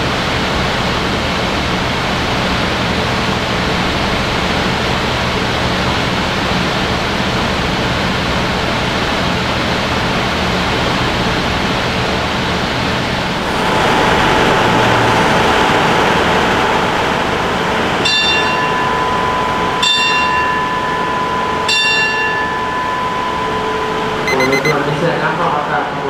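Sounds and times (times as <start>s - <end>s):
train rumbling: 0.0s - 24.2s
bell ringing: 18.1s - 24.8s.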